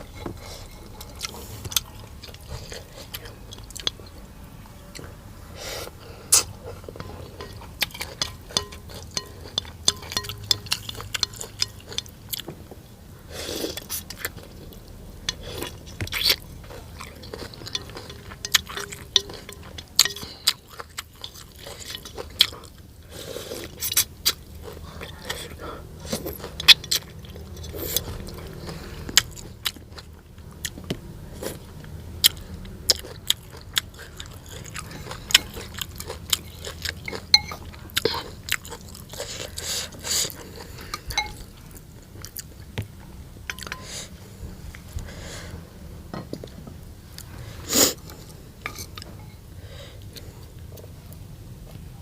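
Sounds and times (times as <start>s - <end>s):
person crunching and chewing: 6.2s - 12.5s, 13.5s - 42.8s.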